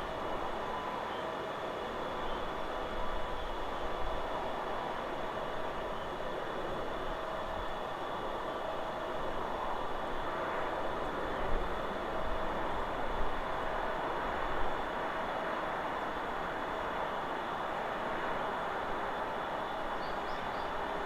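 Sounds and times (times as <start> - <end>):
wind rushing through trees: 0.0 - 21.0.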